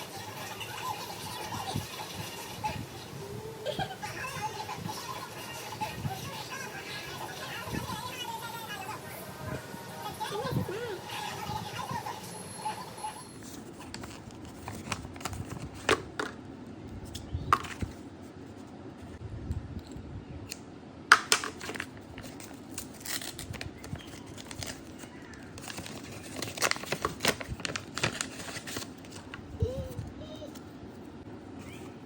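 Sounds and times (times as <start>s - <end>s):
packaging crinkling and rustling: 13.4s - 16.2s, 21.5s - 29.5s.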